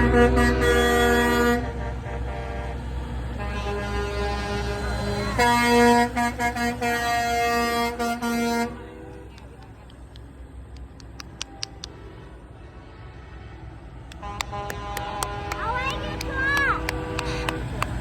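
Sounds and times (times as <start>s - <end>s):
truck air horns blowing: 0.0s - 9.5s, 14.1s - 18.0s
truck engine rumble: 0.0s - 18.0s.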